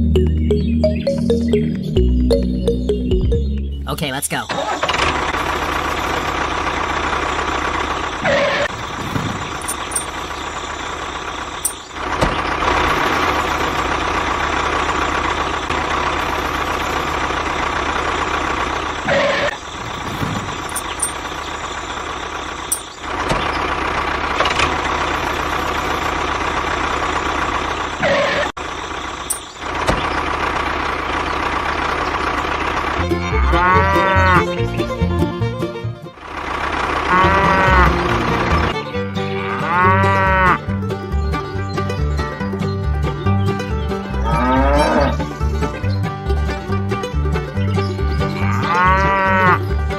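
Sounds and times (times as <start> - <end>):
miniature tractor engine running: 4.6 - 39.2.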